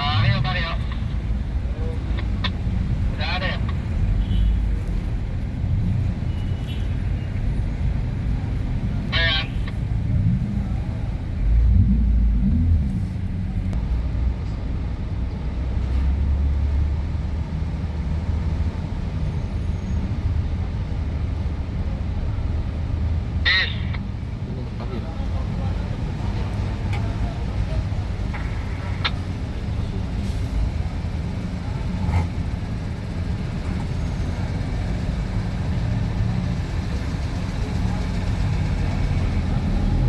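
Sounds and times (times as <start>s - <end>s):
vehicle engines idling: 0.0s - 40.0s.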